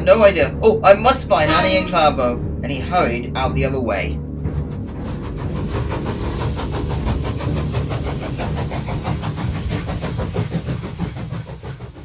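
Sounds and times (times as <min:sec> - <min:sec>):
steam locomotive chuffing: 0:04.3 - 0:12.0.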